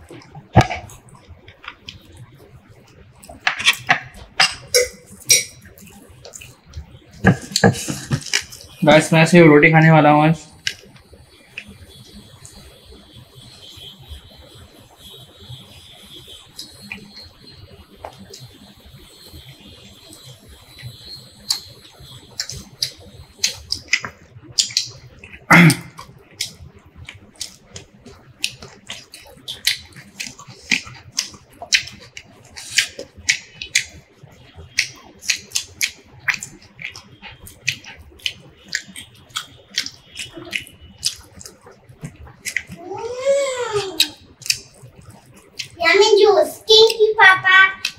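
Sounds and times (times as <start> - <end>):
wet chewing and lip smacking: 4.7 - 8.7, 20.8 - 42.8, 44.0 - 45.8.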